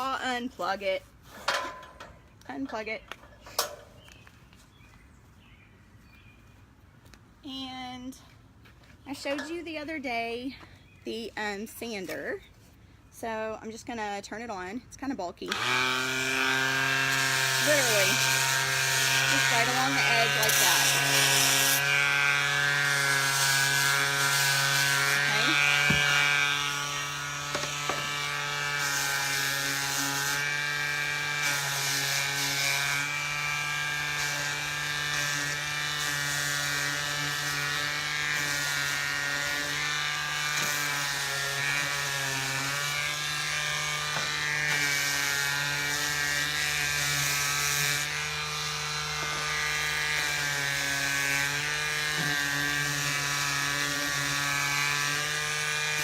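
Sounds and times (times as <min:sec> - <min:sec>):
electric sander motor humming: 0:15.5 - 0:56.0
sandpaper rasping on wood: 0:16.0 - 0:56.0.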